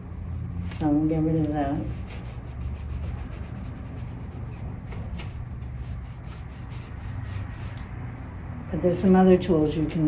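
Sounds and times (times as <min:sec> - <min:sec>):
scratchy rubbing on canvas: 0:01.8 - 0:07.9.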